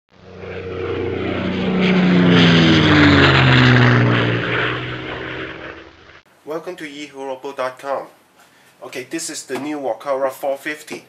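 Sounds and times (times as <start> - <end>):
aircraft engine passing by: 0.1 - 6.3.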